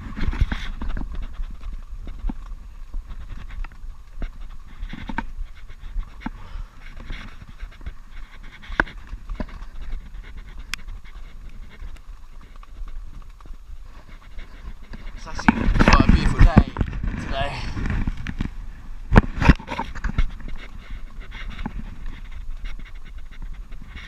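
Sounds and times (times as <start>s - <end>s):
wind rumble on microphone: 0.0s - 24.0s
man breathing heavily: 6.0s - 8.3s.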